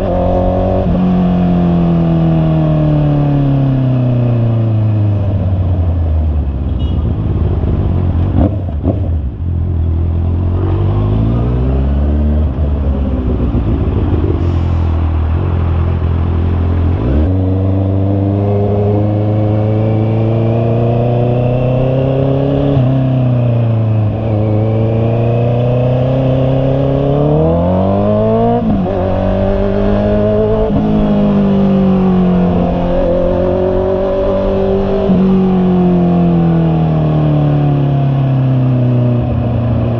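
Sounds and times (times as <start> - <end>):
motorcycle engine accelerating: 6.8 - 39.9.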